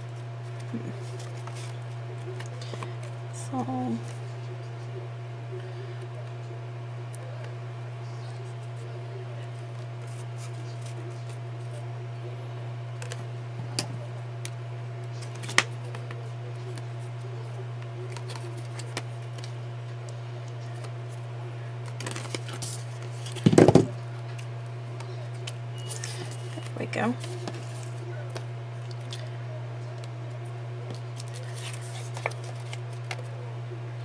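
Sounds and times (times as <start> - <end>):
steady low hum: 0.0 - 34.0
paper rustling: 0.4 - 3.0, 21.8 - 24.4, 25.0 - 28.1, 30.8 - 33.3.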